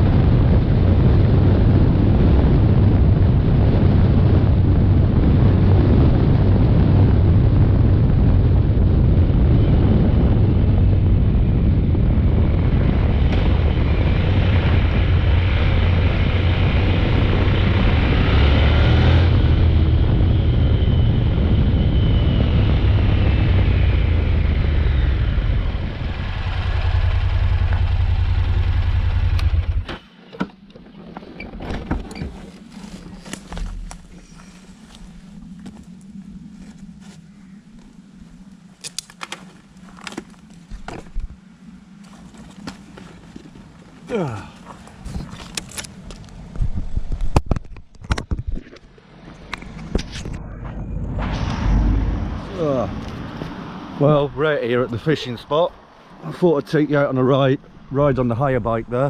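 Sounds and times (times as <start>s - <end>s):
wind rushing over microphone: 0.0s - 59.0s
motorcycle engine running: 10.4s - 30.0s.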